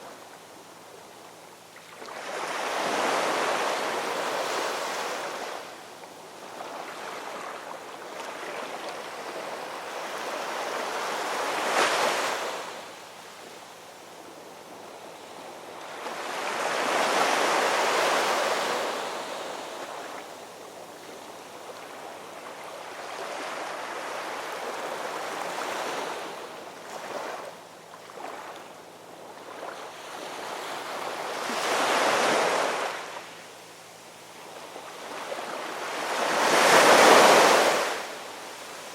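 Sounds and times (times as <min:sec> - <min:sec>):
large waves breaking: 0:35.5 - 0:38.2.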